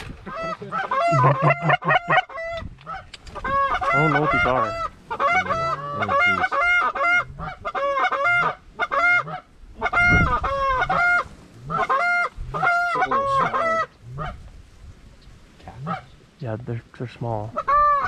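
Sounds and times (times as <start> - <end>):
geese honking: 0.3 - 14.4, 15.7 - 16.3, 17.4 - 18.0.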